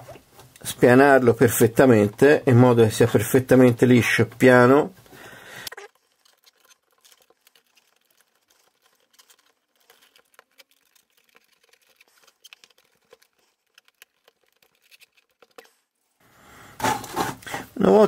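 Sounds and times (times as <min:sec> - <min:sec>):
fingers pressing modelling clay: 0:05.7 - 0:15.8.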